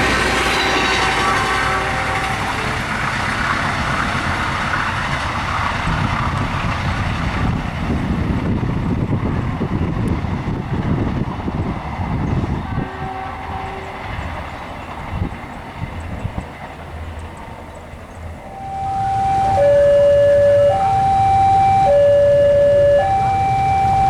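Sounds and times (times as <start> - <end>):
train wheels rumbling and clattering: 0.0 - 18.6
two-tone warning signal: 18.5 - 24.0.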